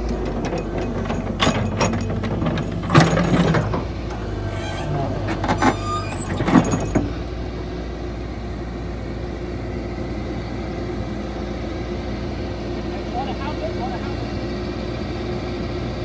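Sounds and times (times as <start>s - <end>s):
sharp metallic clanks: 0.0s - 7.2s
diesel machinery engine running: 0.0s - 16.0s.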